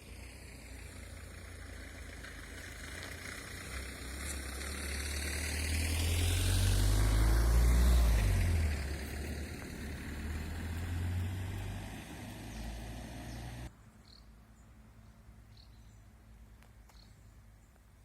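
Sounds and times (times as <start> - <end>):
vehicle engine approaching: 0.0 - 13.7.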